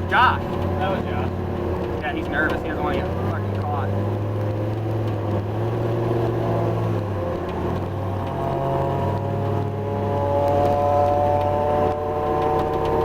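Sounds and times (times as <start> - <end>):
vehicle engine running at low revs: 0.0 - 13.0.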